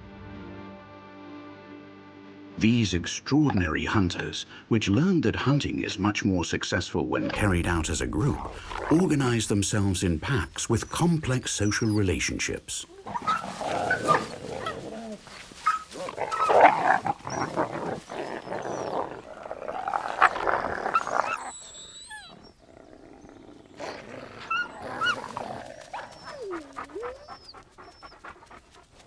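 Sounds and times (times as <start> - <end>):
wolf whining: 7.2 - 9.5, 10.2 - 29.0
wolves growling and snarling: 7.2 - 29.0
small birds chirping: 7.4 - 29.0.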